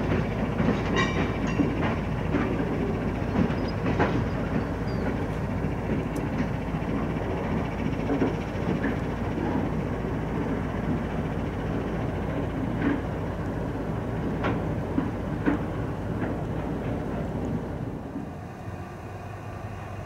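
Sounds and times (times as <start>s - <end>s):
freight train rumbling: 0.0s - 20.0s
sharp clanks: 0.1s - 5.4s.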